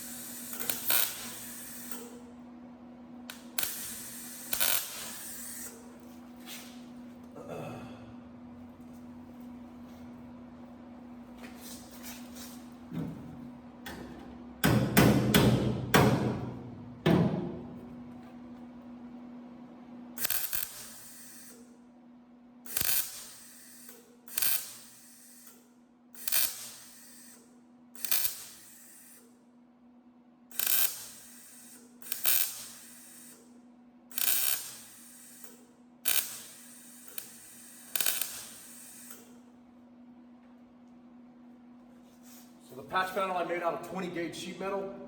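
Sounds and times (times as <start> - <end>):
welder crackling bursts: 0.0 - 2.2, 3.3 - 5.9, 20.2 - 21.6, 22.7 - 25.5, 26.2 - 27.4, 28.0 - 29.2, 30.5 - 33.4, 34.1 - 39.4
steady low hum: 0.0 - 23.4.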